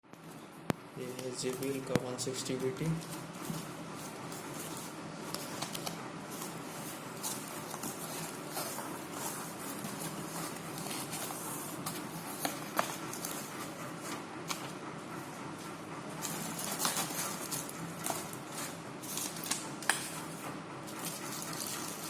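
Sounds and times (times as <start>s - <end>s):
packaging clicks and crinkles: 16.2s - 20.2s.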